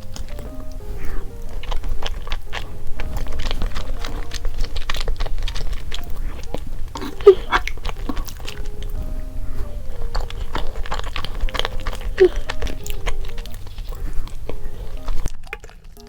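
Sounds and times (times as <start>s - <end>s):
light cute background music: 0.0s - 16.0s
small clicks and crackles: 0.0s - 16.0s.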